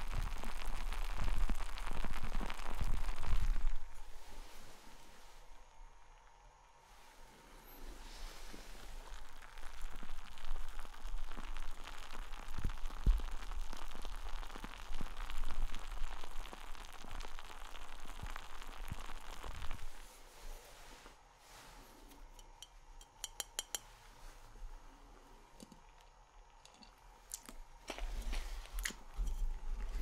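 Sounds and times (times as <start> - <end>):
beer fizzing in a glass: 7.6 - 20.0.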